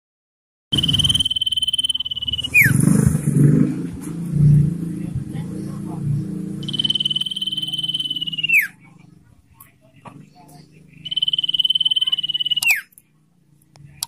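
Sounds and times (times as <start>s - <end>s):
bird long high whistle: 0.8s - 2.8s, 6.6s - 8.7s.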